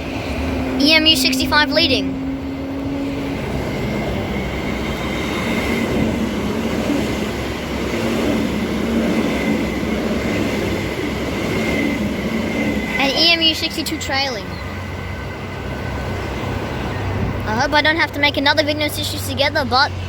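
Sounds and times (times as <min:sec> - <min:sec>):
electric train passing: 0:00.0 - 0:20.0.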